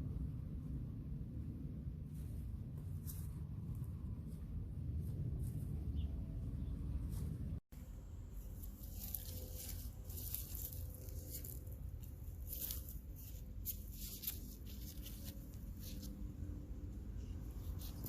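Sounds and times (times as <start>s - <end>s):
low rumble: 0.0s - 13.6s
soil and plants rustling: 0.5s - 18.0s.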